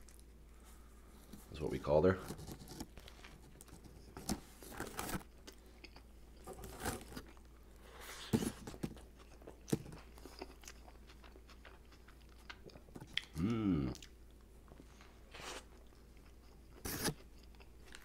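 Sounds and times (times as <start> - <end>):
wet chewing with crunches: 9.0 - 14.2.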